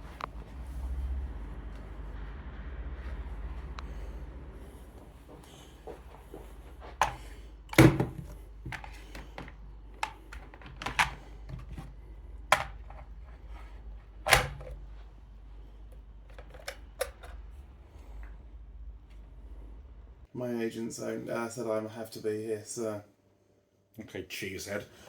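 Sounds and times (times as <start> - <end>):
low steady hum: 0.0 - 25.0
loud thuds: 7.8 - 8.8.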